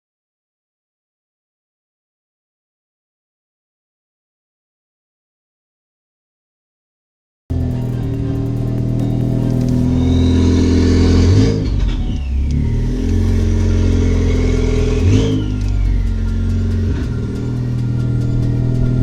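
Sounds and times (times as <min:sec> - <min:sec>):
car engine revving: 0:07.5 - 0:19.0
turbo whistle: 0:07.5 - 0:19.0.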